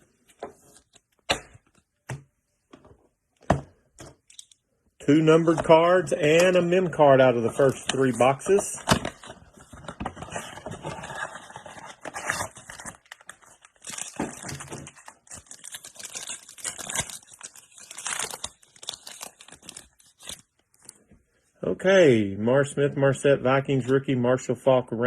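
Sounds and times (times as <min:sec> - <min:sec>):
packaging crinkling and tearing: 0:06.4 - 0:20.9.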